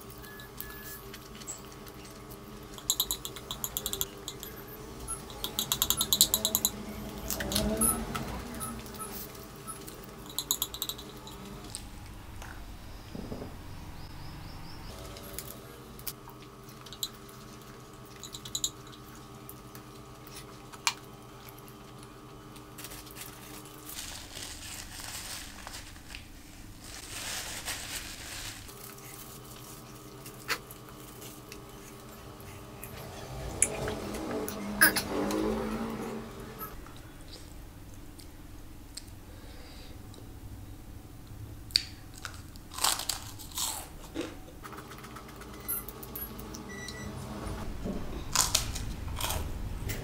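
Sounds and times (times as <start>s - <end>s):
faint steady hum: 35.9s - 50.0s
person chewing: 41.7s - 45.4s.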